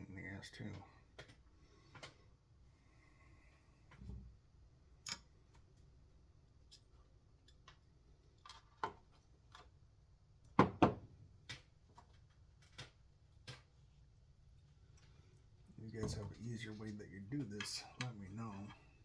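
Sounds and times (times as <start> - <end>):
small parts clicking and tapping: 6.6 - 9.8, 11.4 - 13.8.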